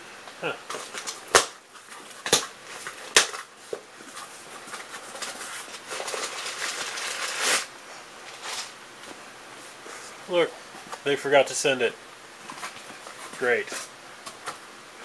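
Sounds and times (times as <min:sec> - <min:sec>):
package rustling: 0:00.7 - 0:08.8.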